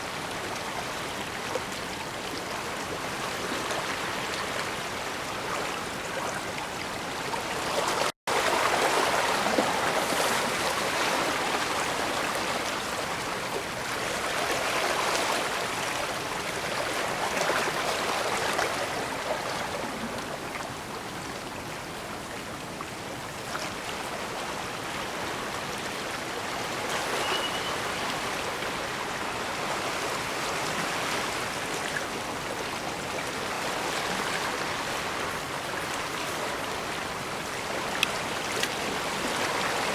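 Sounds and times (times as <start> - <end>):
water washing against shore: 0.0 - 21.3.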